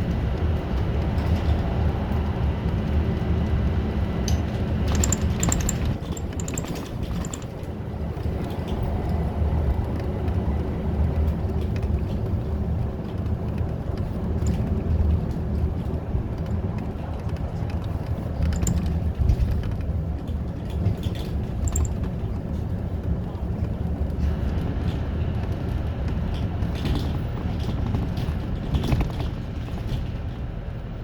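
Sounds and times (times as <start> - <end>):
bus engine and road rumble: 0.0 - 31.0
light clicks: 4.9 - 7.5.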